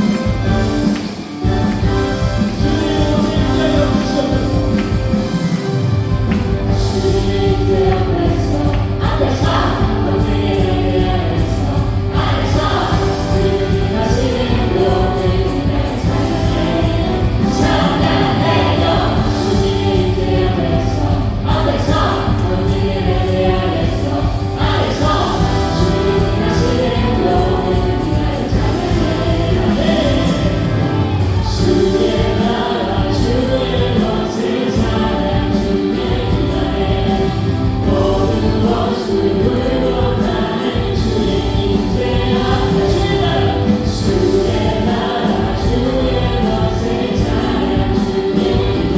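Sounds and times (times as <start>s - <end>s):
praise band playing: 0.0s - 48.9s
voices singing together: 0.0s - 48.9s.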